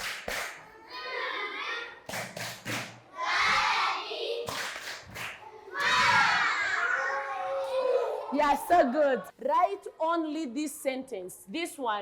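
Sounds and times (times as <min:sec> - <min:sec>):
children clapping in unison: 0:00.0 - 0:00.7, 0:02.1 - 0:03.0, 0:04.4 - 0:06.0
children chanting and shouting: 0:00.6 - 0:02.1, 0:03.1 - 0:08.6.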